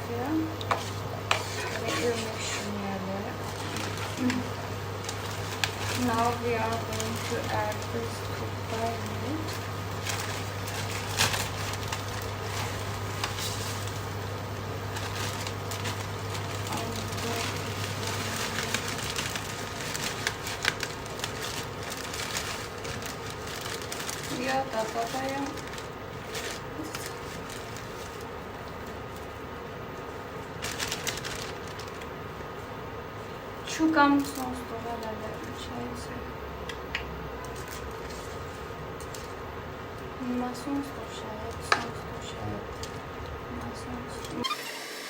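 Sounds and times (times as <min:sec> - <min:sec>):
constant low hum: 0:00.0 - 0:44.4
spatula scraping pan: 0:00.7 - 0:02.8
oil popping and crackling: 0:03.2 - 0:29.4, 0:30.0 - 0:32.5.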